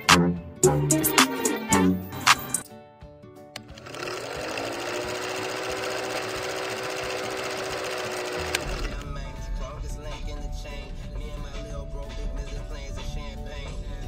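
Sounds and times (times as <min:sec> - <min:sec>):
film projector clatter: 0:03.6 - 0:09.0.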